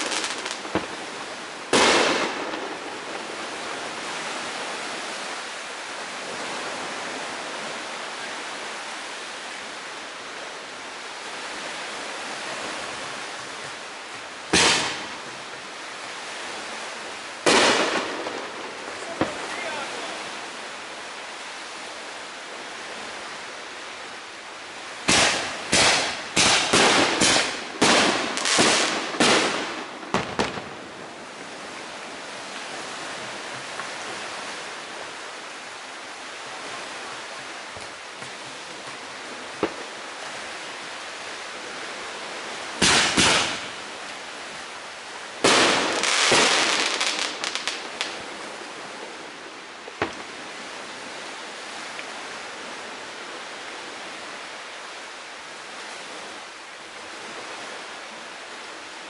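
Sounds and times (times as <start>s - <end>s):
fireworks bangs: 0.0s - 3.7s, 14.5s - 15.4s, 17.4s - 20.2s, 25.0s - 31.0s, 42.8s - 43.8s, 45.4s - 48.2s
fireworks crackling: 0.0s - 4.3s, 12.5s - 15.6s, 17.4s - 20.5s, 25.0s - 33.8s, 37.3s - 40.1s, 42.8s - 43.8s, 45.4s - 50.5s
steady hiss: 0.0s - 59.0s.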